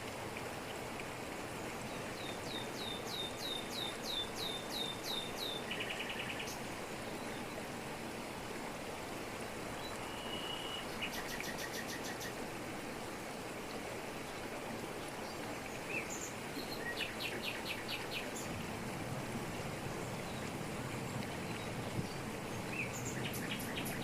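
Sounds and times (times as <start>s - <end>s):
waterfall rushing over rocks: 0.0s - 24.0s.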